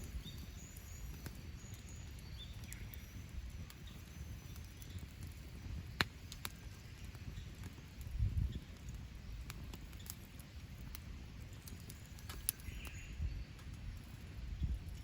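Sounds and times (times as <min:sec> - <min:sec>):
faint bird chirps: 0:00.0 - 0:07.6, 0:11.4 - 0:14.8
campfire crackling and popping: 0:00.0 - 0:15.0.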